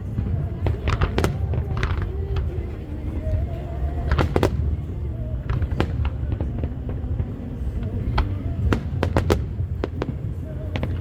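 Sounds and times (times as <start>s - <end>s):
firework bangs: 0.0s - 11.0s
low rumble of fireworks: 0.0s - 11.0s.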